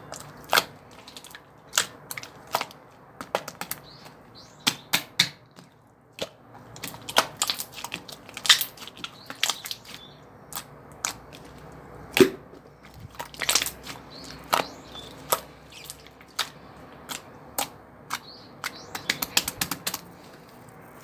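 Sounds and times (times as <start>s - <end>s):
sharp clicks and taps: 16.3s - 20.0s.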